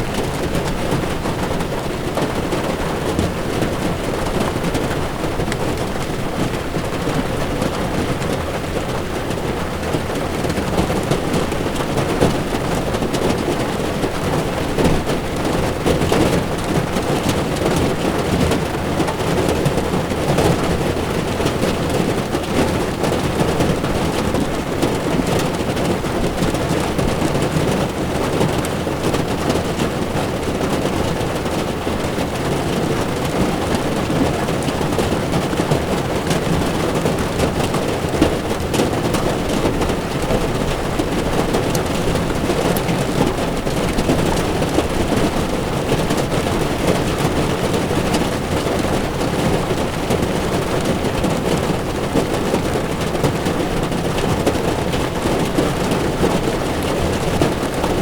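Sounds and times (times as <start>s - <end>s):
rain drumming on a car: 0.0s - 58.0s.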